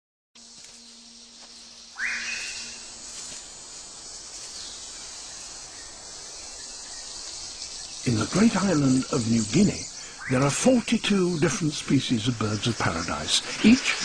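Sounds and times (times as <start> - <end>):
high insect drone: 0.4 - 14.0
rising whistled bird call: 1.9 - 2.8.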